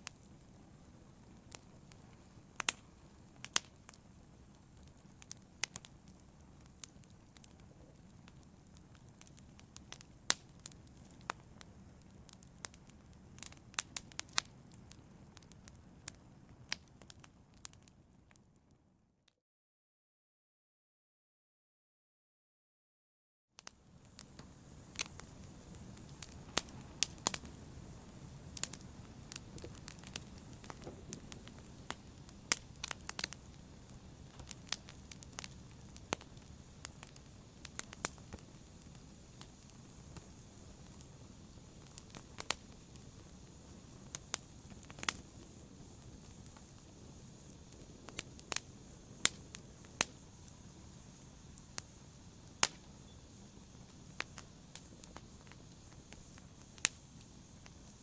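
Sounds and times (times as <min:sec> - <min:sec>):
fire crackles and pops: 0:00.0 - 0:18.8, 0:23.6 - 0:58.0
fire flame rushing: 0:24.2 - 0:58.0.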